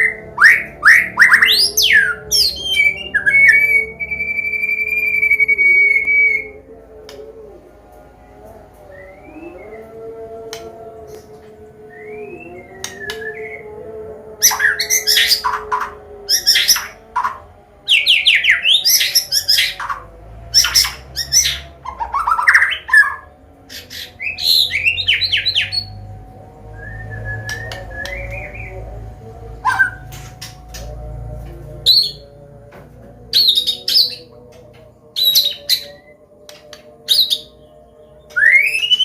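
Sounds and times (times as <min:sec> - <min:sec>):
songbird singing varied song: 0:08.9 - 0:13.8, 0:14.4 - 0:30.9, 0:33.3 - 0:39.0.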